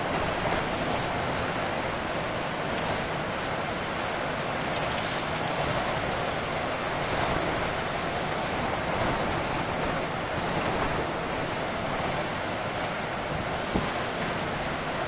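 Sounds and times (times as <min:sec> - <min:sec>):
rough sea: 0:00.0 - 0:15.0
strong wind roaring: 0:00.0 - 0:15.0
wind buffeting microphone: 0:00.0 - 0:15.0.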